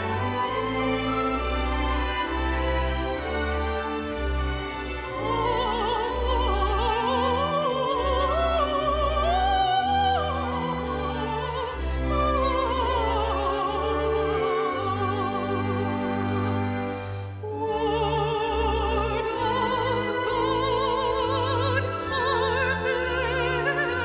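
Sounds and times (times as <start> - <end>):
orchestral accompaniment: 0.0 - 24.0
operatic voice singing: 17.4 - 24.0.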